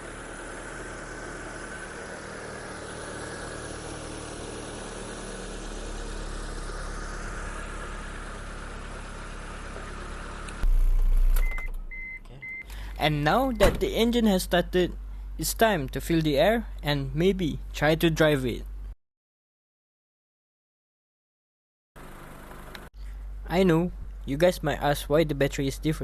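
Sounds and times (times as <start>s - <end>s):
car engine idling: 0.0s - 13.8s, 22.0s - 23.5s.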